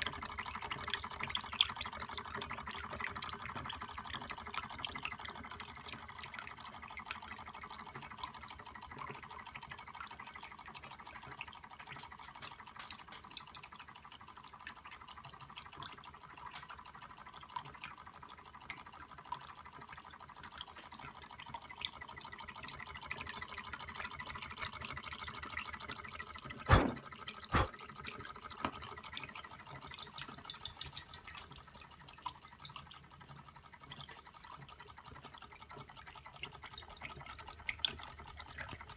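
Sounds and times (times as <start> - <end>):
sharp knocks: 26.7 - 27.0
hot-air engine running: 26.7 - 27.7.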